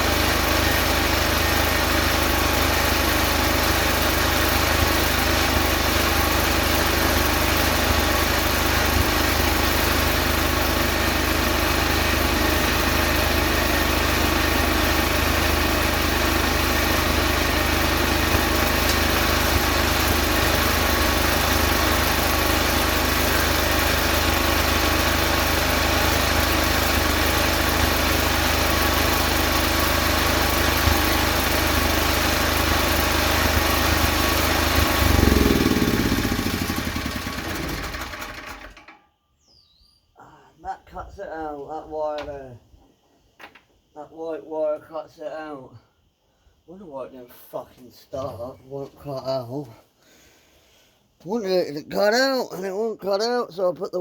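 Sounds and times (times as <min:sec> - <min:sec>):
small petrol engine idling: 0:00.0 - 0:39.0.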